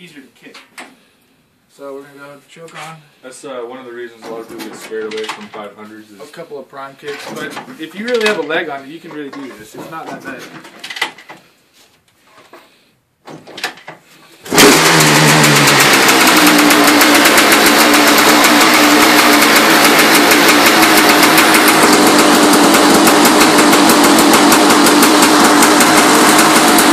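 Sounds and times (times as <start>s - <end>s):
two-stroke engine running: 14.4s - 26.9s.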